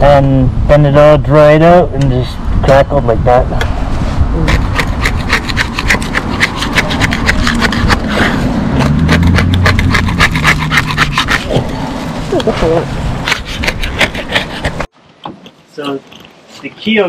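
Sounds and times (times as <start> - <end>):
rasping paint scraping: 4.4 - 11.7, 13.2 - 14.9.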